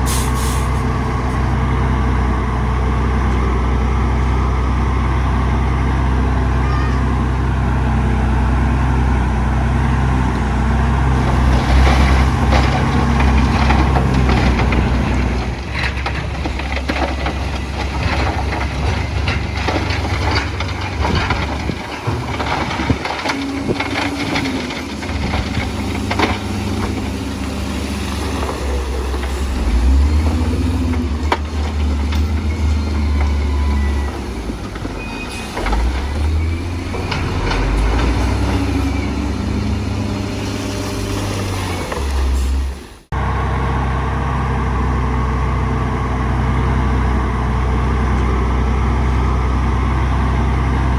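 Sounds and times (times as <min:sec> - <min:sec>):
diesel machinery engine drone: 0:00.0 - 0:50.9
clanks and knocks: 0:11.2 - 0:39.0.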